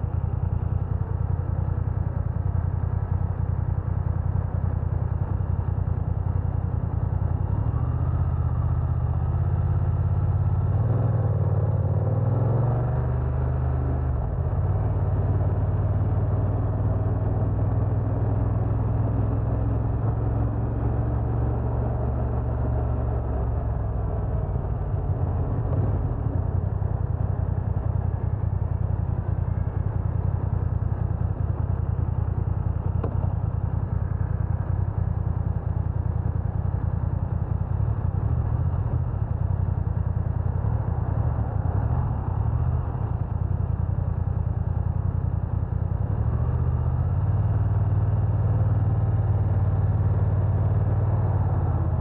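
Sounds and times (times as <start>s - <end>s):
motorcycle engine running: 0.0s - 52.0s
wind and road noise: 0.0s - 52.0s.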